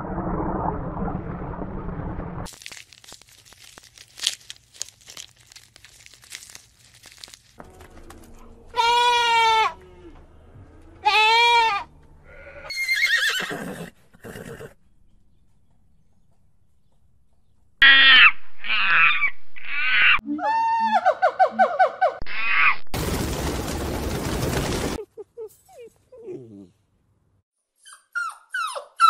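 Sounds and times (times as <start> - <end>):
goat bleating: 8.7 - 9.8, 11.0 - 12.8.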